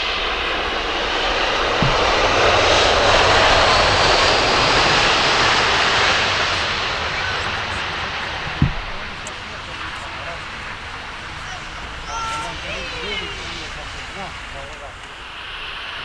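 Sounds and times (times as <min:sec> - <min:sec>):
aircraft engines roaring past: 0:00.0 - 0:16.0.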